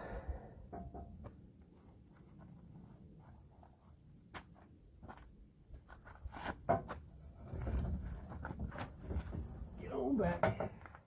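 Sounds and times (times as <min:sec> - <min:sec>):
footsteps crunching on dirt: 0:01.7 - 0:06.6.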